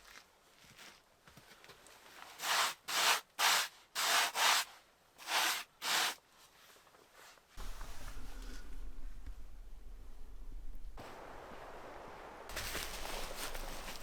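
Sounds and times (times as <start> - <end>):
low steady rumble: 7.6 - 14.0.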